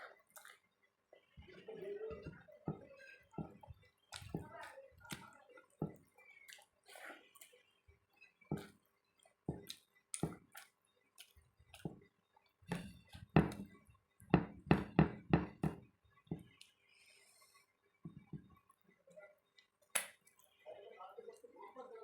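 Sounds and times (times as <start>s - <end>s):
person eating close-up: 0.1s - 0.7s, 3.4s - 13.8s.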